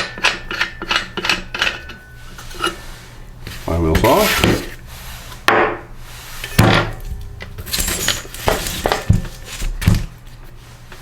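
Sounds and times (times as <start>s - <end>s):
metal tools clanking on workbench: 6.5s - 9.6s.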